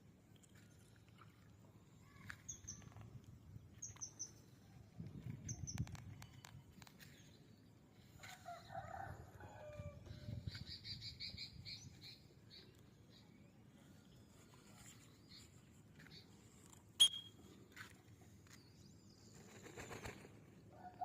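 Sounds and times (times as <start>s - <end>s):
high bird chirps: 17.0s - 17.4s.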